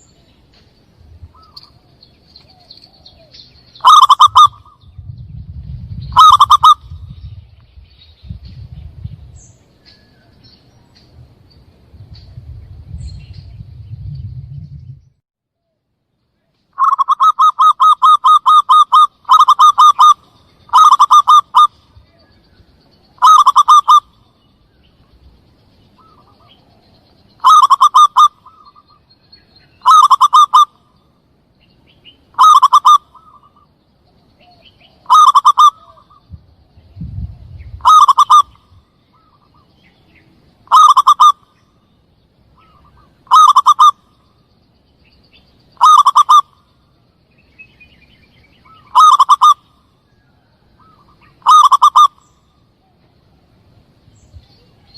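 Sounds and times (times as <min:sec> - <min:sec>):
dove cooing: 0:01.4 - 0:04.8, 0:06.1 - 0:07.1, 0:16.8 - 0:22.2, 0:23.2 - 0:24.1, 0:27.4 - 0:28.9, 0:29.8 - 0:30.8, 0:32.4 - 0:33.6, 0:34.4 - 0:36.2, 0:37.8 - 0:38.6, 0:40.7 - 0:41.5, 0:42.6 - 0:44.0, 0:45.8 - 0:46.6, 0:48.7 - 0:49.6, 0:50.8 - 0:52.2
low rumble: 0:04.7 - 0:06.2, 0:06.8 - 0:09.9, 0:10.7 - 0:15.2, 0:36.2 - 0:37.9.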